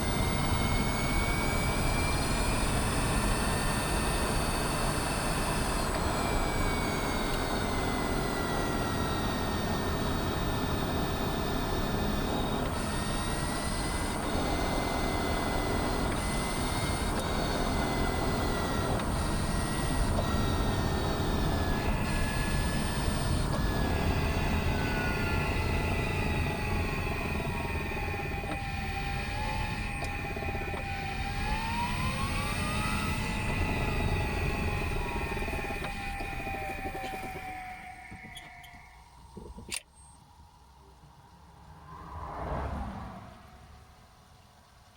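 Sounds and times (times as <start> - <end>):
thin electric motor whine: 0.0 - 40.2.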